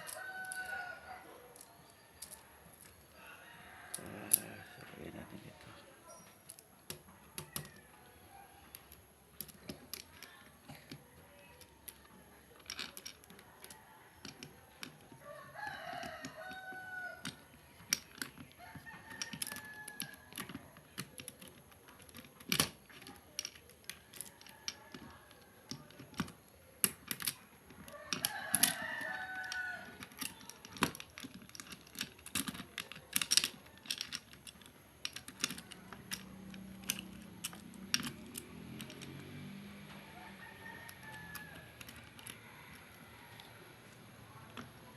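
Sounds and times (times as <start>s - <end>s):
rooster crowing: 0.0s - 1.5s, 3.2s - 5.3s, 15.2s - 17.2s, 27.9s - 30.0s, 39.1s - 44.5s
small parts clicking and clinking: 0.0s - 44.9s.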